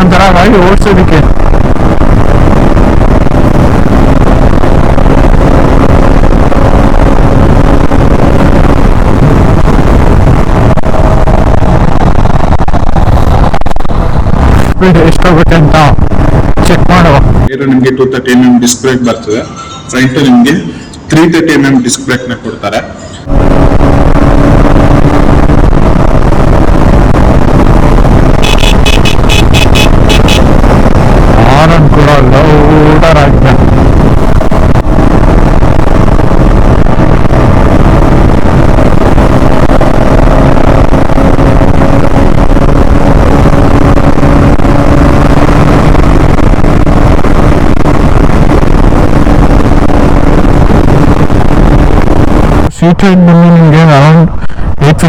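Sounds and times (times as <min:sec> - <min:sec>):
wind rumble on microphone: 0:00.0 - 0:17.6, 0:23.1 - 0:55.0
motorcycle engine running: 0:01.2 - 0:14.8, 0:23.2 - 0:52.6.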